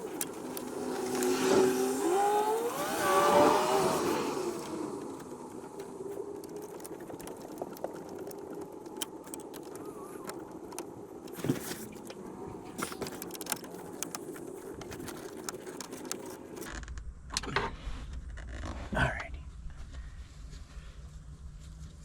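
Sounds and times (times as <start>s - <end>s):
steady background hum: 0.0s - 22.0s
small parts and tools clicking: 2.7s - 17.5s.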